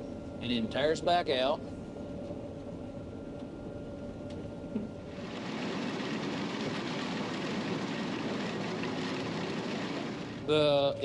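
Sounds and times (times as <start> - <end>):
combine harvester running: 5.0 - 11.0.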